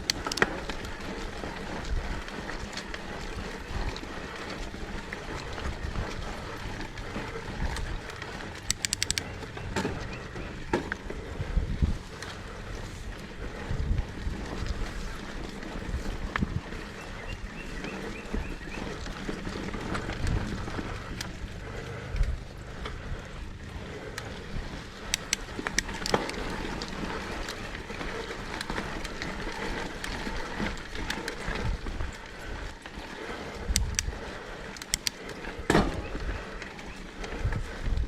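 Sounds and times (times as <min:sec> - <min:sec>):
bike tyres rolling on dirt: 0:00.0 - 0:38.0
wind on microphone: 0:11.2 - 0:12.1, 0:12.7 - 0:19.0.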